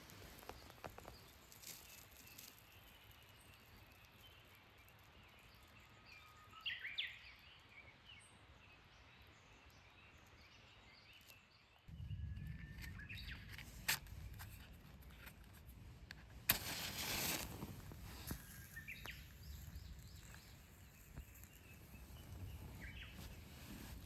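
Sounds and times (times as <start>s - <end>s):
steady low rumble: 11.9s - 16.7s
loud rustle: 16.5s - 19.1s
birds chirping: 18.1s - 24.0s.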